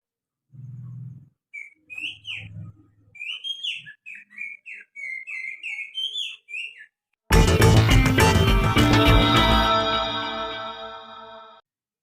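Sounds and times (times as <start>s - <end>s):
finger whistling birdsong: 1.5s - 7.0s.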